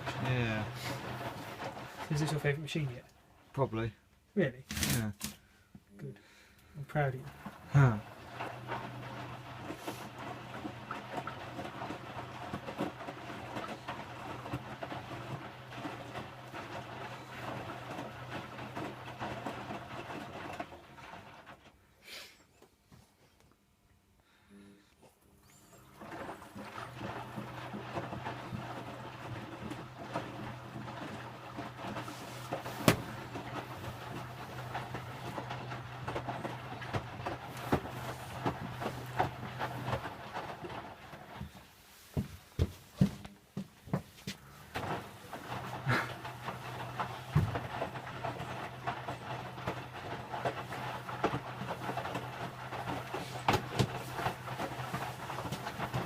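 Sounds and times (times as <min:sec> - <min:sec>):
clicks and clatter from drum: 0:00.0 - 0:02.8, 0:07.2 - 0:21.7, 0:25.6 - 0:41.6, 0:43.9 - 0:56.0
washing machine motor hum: 0:00.0 - 0:04.0, 0:06.6 - 0:21.8, 0:25.4 - 0:56.0.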